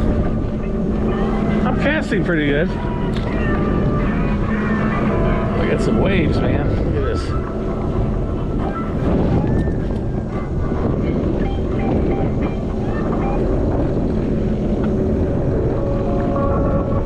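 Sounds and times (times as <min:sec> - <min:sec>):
choppy waves: 0:00.0 - 0:17.0
jet ski engine running: 0:00.0 - 0:17.0
wind buffeting microphone: 0:00.0 - 0:17.0.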